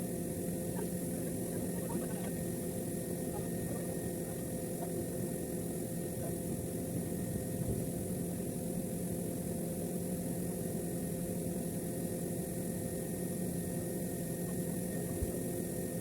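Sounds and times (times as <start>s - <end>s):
machine hum: 0.0s - 8.2s.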